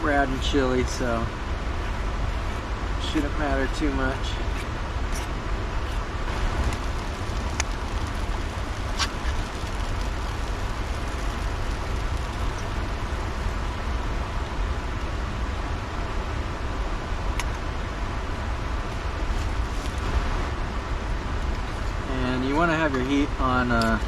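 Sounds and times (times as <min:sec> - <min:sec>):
camp stove burner running: 0:06.2 - 0:14.9, 0:19.2 - 0:20.6.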